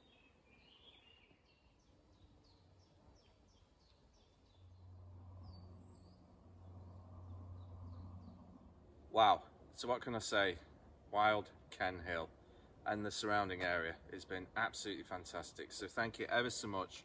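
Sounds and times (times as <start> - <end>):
small bird chirping: 0.0 - 8.5
low steady hum: 1.8 - 17.0.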